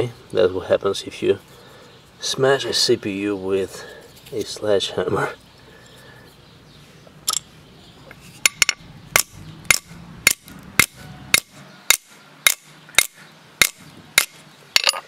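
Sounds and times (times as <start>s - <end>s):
hammer striking metal: 8.4s - 15.0s.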